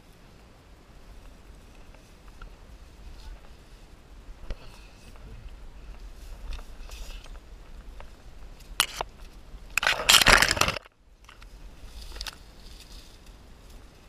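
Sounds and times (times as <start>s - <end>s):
scraping and crunching over rock: 4.4s - 14.0s.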